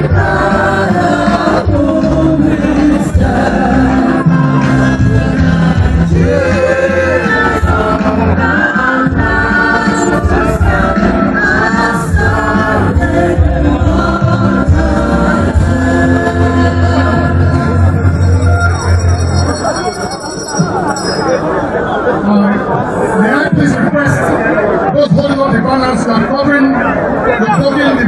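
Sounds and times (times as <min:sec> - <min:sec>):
choir singing gospel music: 0:00.0 - 0:19.4
steady bass notes: 0:00.0 - 0:21.2.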